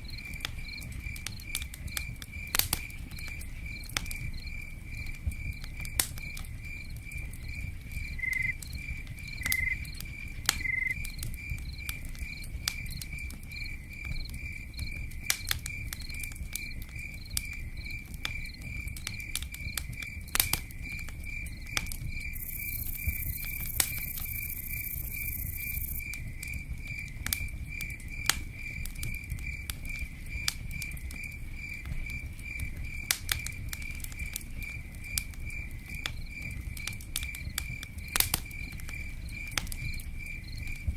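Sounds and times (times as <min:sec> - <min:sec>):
cricket chirping: 0:00.0 - 0:40.9
low rumble with crackling pops: 0:00.0 - 0:40.9.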